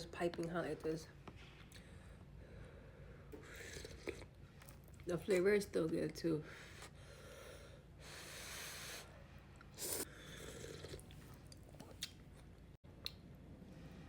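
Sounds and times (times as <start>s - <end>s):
person slurping noodles: 3.4s - 4.3s, 9.8s - 11.2s
soft chewing: 9.6s - 13.2s.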